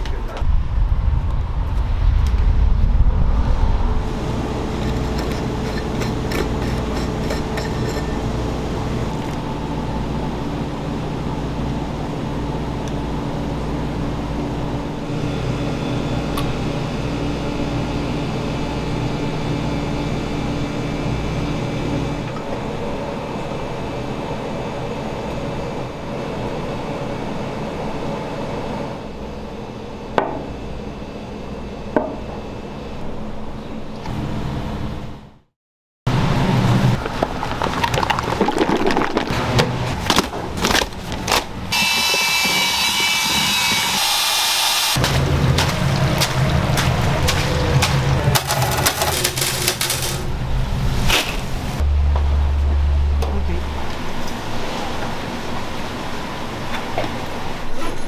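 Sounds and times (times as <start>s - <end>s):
mechanical running rumble: 2.6s - 24.0s, 45.0s - 55.9s.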